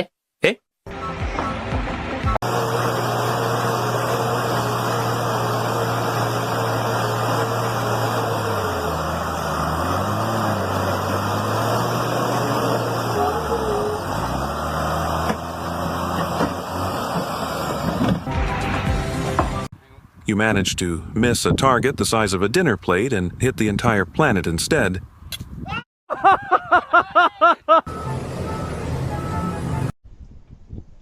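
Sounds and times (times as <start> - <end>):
engine running: 1.9 - 19.7, 27.9 - 30.0.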